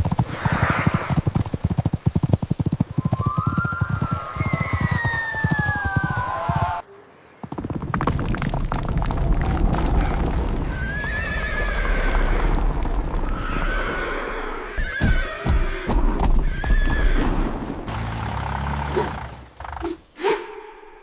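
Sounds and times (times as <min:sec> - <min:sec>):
horse whinnying: 0:13.3 - 0:17.6.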